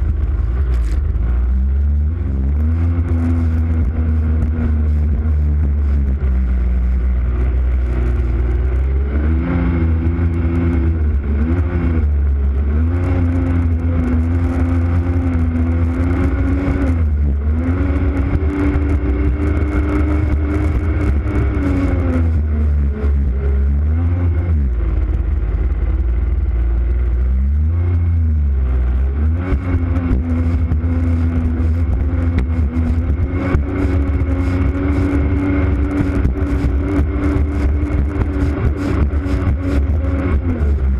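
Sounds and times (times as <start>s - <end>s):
jet ski engine revving: 0.0s - 40.9s.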